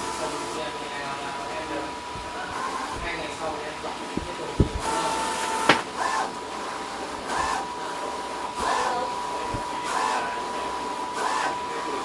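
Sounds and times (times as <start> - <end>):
die-cutting machine whine: 1.4 - 12.0
air hum: 1.5 - 6.3
low thumps: 2.1 - 5.9.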